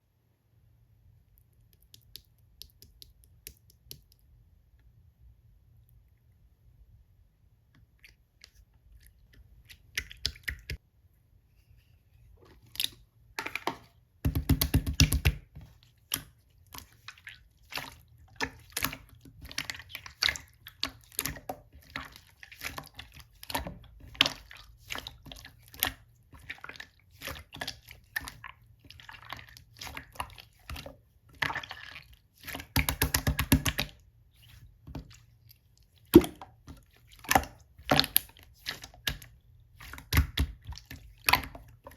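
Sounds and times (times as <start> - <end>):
slime squelching and popping: 7.8 - 10.8, 12.4 - 41.9.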